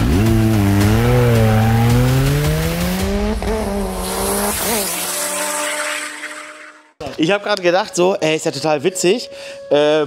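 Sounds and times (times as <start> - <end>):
vehicle engine accelerating: 0.0 - 6.9.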